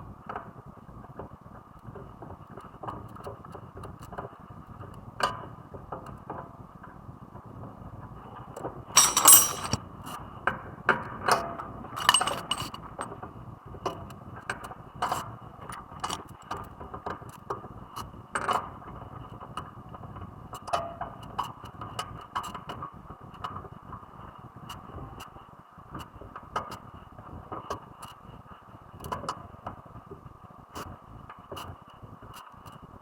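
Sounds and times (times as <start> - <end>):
metal tools clinking and knocking: 9.0 - 9.8, 12.0 - 13.1.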